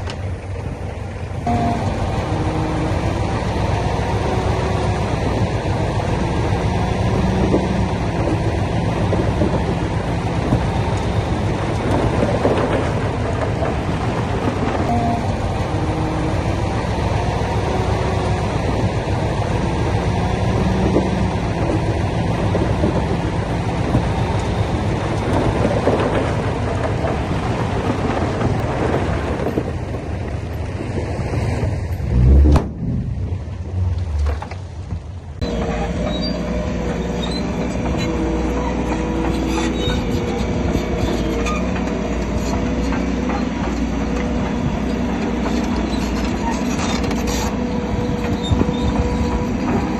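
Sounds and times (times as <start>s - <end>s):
bulldozer engine under load: 0.0s - 49.9s
steel tracks clanking: 1.4s - 30.0s, 31.9s - 49.9s
heavy thuds: 32.1s - 35.2s.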